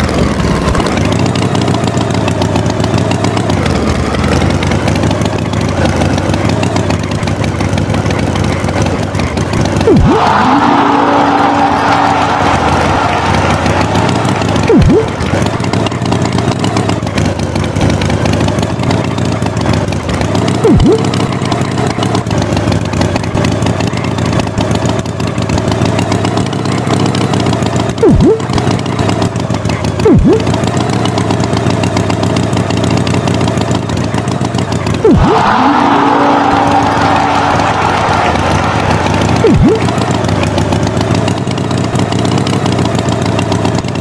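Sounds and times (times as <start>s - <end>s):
engine running: 0.0s - 44.0s
swooping sounds plunging in pitch: 9.8s - 16.0s, 20.6s - 21.6s, 28.0s - 28.7s, 30.0s - 30.6s, 35.0s - 40.6s.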